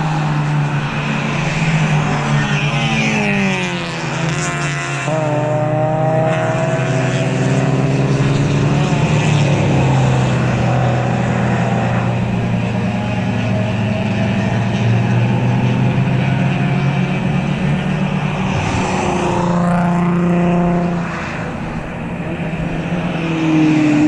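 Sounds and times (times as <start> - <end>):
race cars passing at speed: 0.0 - 24.0.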